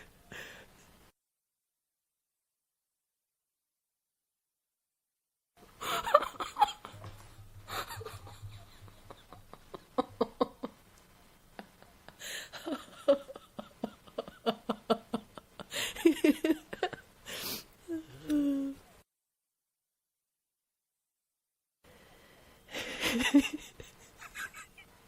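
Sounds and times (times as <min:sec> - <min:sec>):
woman laughing: 0:05.8 - 0:10.8, 0:11.6 - 0:17.1, 0:22.7 - 0:24.9.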